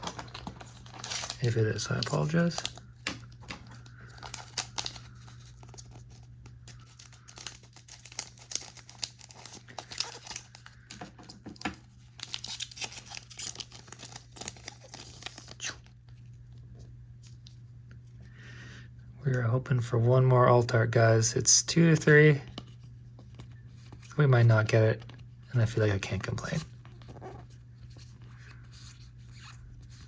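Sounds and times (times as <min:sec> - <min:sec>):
cards ticking: 0:00.0 - 0:15.9
foil wrappers tearing and crinkling: 0:00.0 - 0:16.0.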